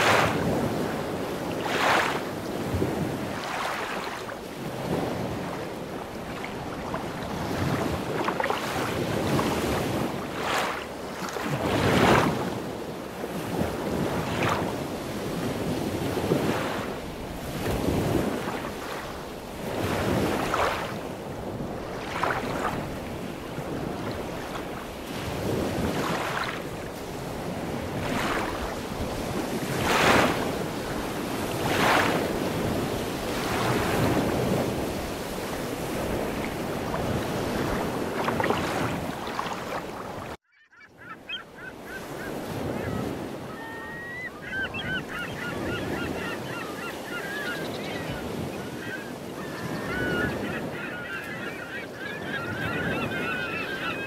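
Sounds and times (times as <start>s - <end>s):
lake water washing against stone shore: 0.0s - 40.4s
geese honking: 48.7s - 54.0s.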